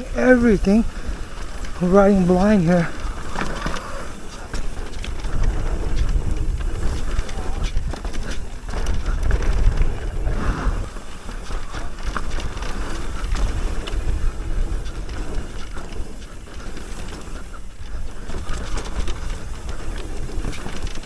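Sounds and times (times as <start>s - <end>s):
bike rattling and knocking: 0.0s - 21.0s
wind buffeting microphone: 0.0s - 21.0s.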